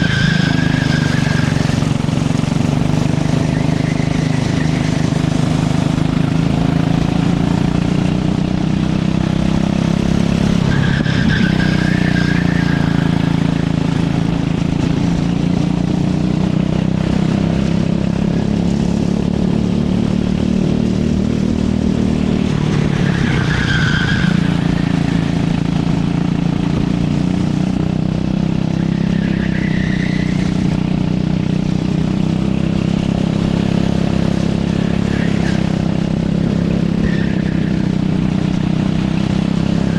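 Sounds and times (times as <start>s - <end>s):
tyre squeals: 0.0s - 7.7s, 10.1s - 13.9s, 22.5s - 26.3s, 28.5s - 31.0s, 34.4s - 39.9s
go-kart engine running hard: 0.0s - 39.9s.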